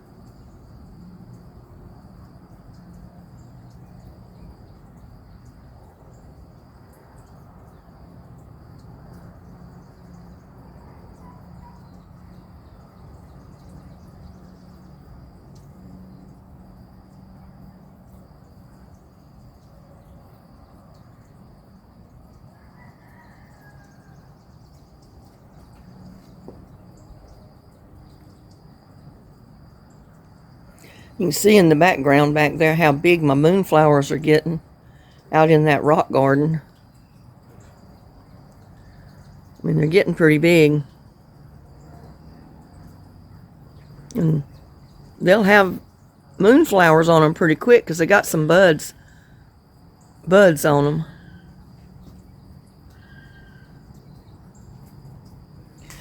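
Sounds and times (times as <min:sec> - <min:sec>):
pulsing insect trill: 0:00.0 - 0:56.0
faint bird chirps: 0:22.5 - 0:28.5.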